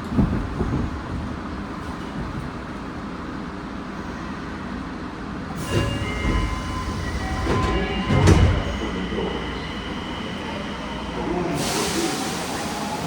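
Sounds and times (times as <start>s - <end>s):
subway train running: 0.0s - 13.0s
heavy jolts of train: 5.6s - 13.0s.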